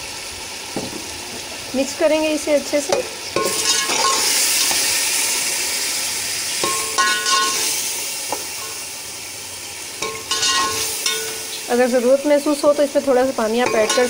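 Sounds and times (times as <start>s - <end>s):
masala sizzling in oil: 0.0s - 14.0s
metal spoon scraping pot: 10.0s - 11.6s.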